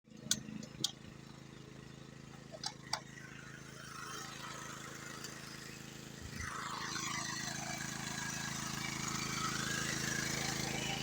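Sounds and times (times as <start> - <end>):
engine humming: 0.1 - 11.0.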